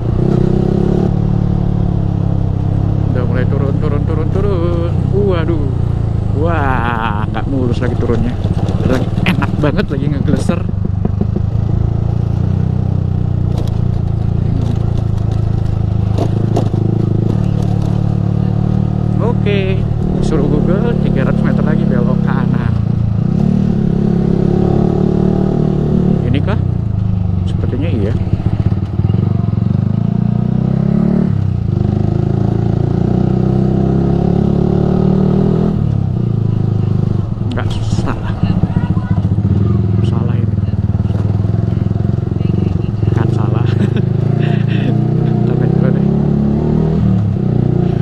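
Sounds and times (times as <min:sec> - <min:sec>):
motorcycle engine running: 0:00.0 - 0:48.0
clacks and rattles: 0:07.6 - 0:12.4, 0:13.4 - 0:18.8.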